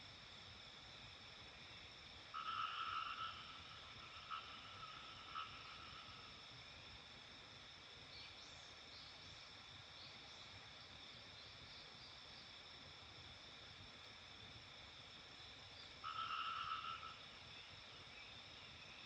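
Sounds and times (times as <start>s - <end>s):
loud animal call: 16.0s - 17.2s.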